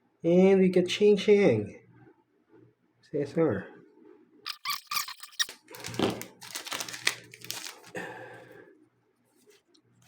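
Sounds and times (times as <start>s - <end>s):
foil wrapper tearing and crinkling: 4.5s - 8.0s.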